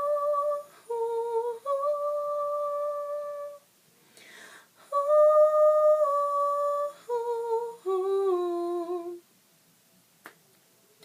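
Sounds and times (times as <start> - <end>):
woman singing a cappella: 0.0 - 3.7, 4.7 - 9.3.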